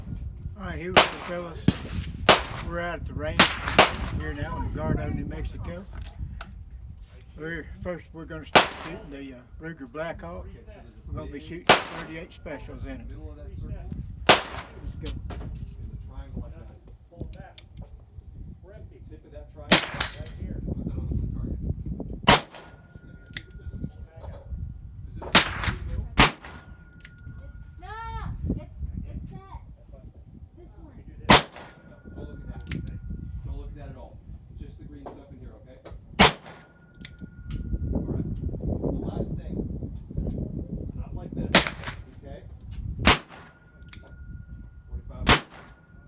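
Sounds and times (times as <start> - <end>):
revolver shots with echo: 19.7 - 20.5, 43.0 - 43.8, 45.3 - 46.0.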